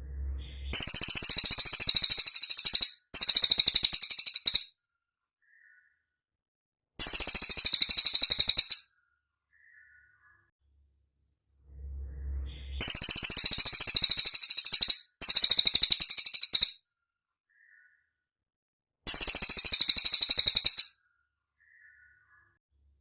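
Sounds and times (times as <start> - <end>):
low rumble: 0.0 - 1.2, 11.4 - 13.2
bird chirps: 0.0 - 4.7, 5.4 - 6.1, 7.0 - 8.9, 9.5 - 10.5, 12.2 - 16.8, 17.5 - 18.2, 19.1 - 21.0, 21.6 - 22.6
bird high-pitched trills: 0.1 - 4.7, 7.0 - 8.9, 12.2 - 16.8, 19.1 - 21.0.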